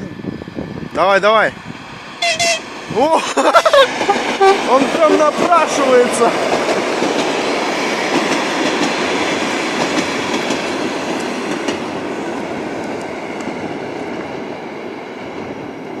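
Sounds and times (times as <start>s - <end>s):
train wheels rattling over rails: 0.4s - 16.0s.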